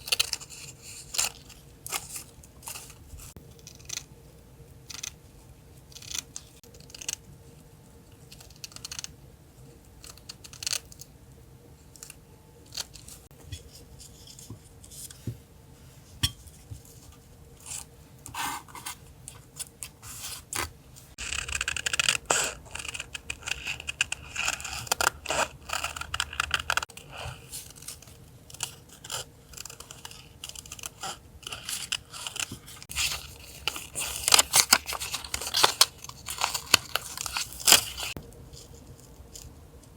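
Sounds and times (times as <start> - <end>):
faint electrical hum: 0.0 - 39.9
paper scraping and tearing: 29.0 - 38.2.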